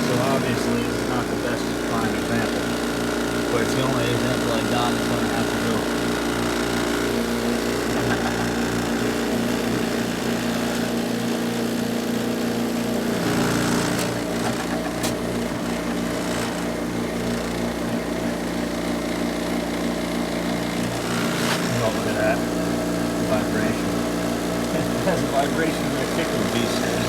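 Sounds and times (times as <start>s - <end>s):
compressor humming and vibrating: 0.0s - 27.0s.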